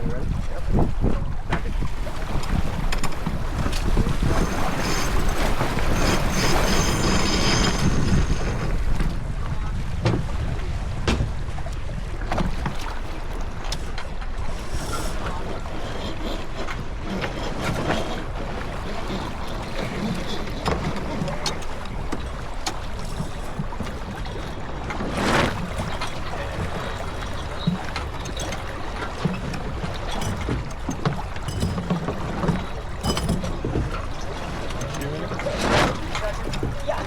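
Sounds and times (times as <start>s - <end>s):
water rushing along hull: 0.0s - 37.0s
wind buffeting microphone: 0.0s - 37.0s
sharp knocks of boat gear: 10.0s - 10.4s, 11.0s - 11.4s, 25.3s - 37.0s.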